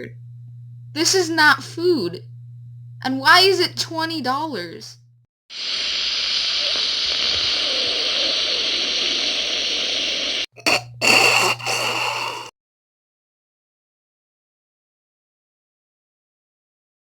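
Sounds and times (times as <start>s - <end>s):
low hum: 0.0s - 5.3s.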